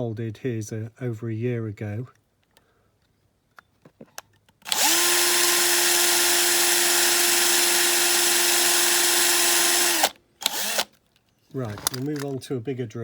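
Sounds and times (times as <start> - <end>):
small electric drill whining: 4.6 - 11.0.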